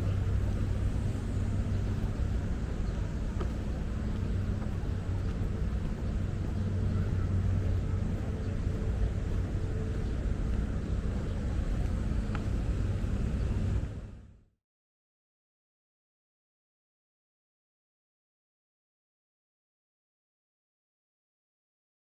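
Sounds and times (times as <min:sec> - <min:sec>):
city traffic rumble: 0:00.0 - 0:14.5.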